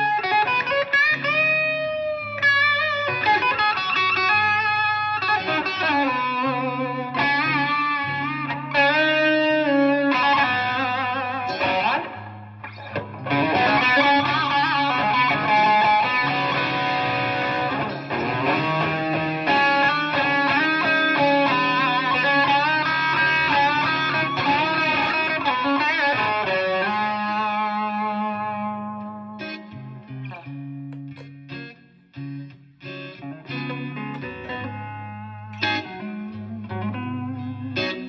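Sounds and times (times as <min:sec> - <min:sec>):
electric guitar lead with bends: 0:00.0 - 0:38.0
steady low guitar notes: 0:00.0 - 0:38.0.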